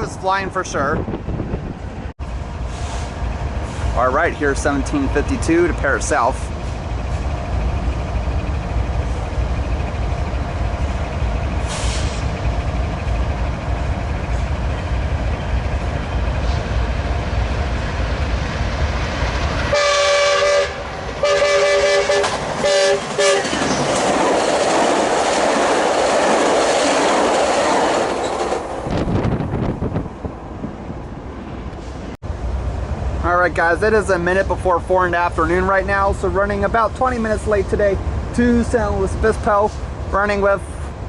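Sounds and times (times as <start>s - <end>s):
train rumbling: 0.0s - 41.0s
wheel and rail noise: 0.9s - 41.0s
train horn blasts: 19.7s - 23.5s.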